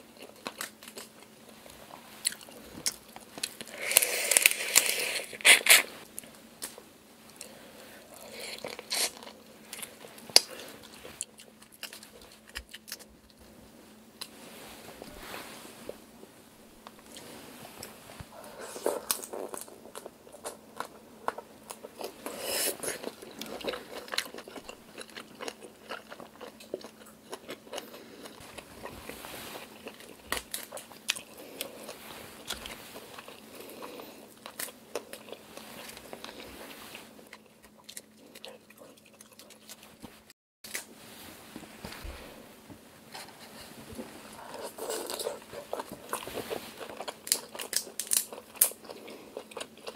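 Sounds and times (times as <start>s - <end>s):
chewing shrimp crunches: 0.2s - 1.3s, 18.7s - 29.0s, 29.6s - 40.0s, 44.4s - 49.9s.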